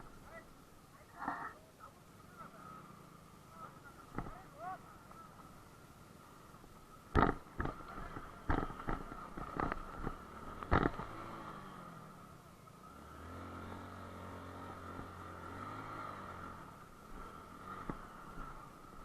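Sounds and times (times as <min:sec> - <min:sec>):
motorcycle engine: 0:00.0 - 0:19.0
knocks from bumps: 0:07.1 - 0:11.2.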